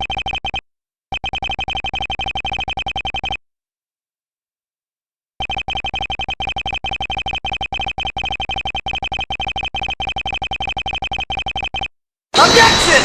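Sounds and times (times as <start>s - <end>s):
short electronic text beeps: 0.0s - 3.4s, 5.4s - 11.9s.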